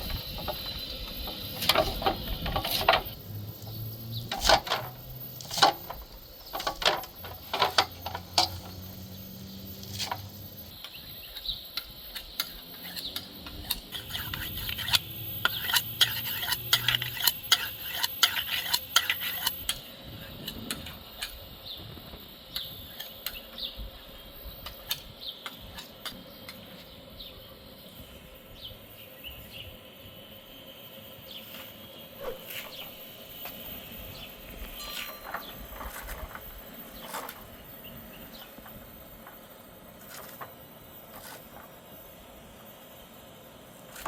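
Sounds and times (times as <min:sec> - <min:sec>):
utensils clinking against dishes: 0:00.0 - 0:10.7, 0:12.2 - 0:19.8, 0:34.6 - 0:36.4.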